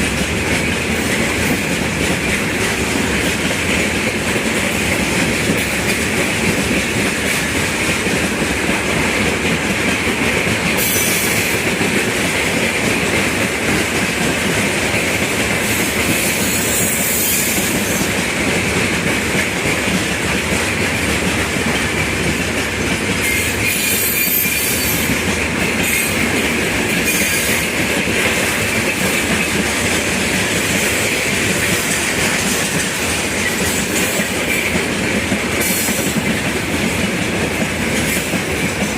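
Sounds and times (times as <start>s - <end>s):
freight train wheels rumbling: 0.0s - 38.9s
high-pitched wheel squeals: 23.7s - 25.1s.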